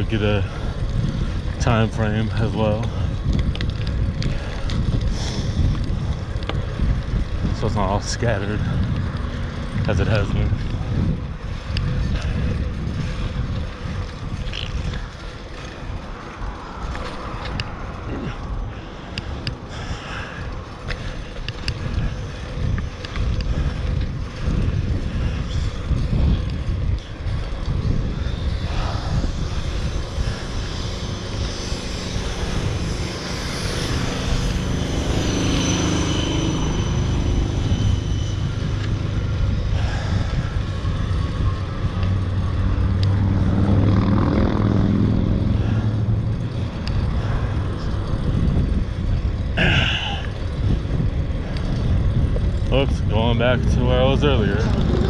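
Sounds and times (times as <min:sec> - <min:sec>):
bicycle road rumble: 0:00.0 - 0:55.0
passing motor traffic: 0:00.0 - 0:55.0
wind: 0:00.0 - 0:55.0.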